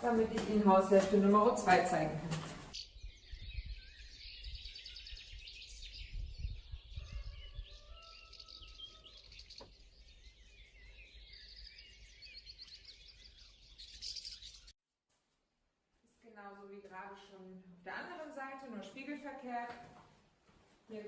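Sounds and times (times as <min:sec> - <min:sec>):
songbirds chirping: 0:00.0 - 0:14.7.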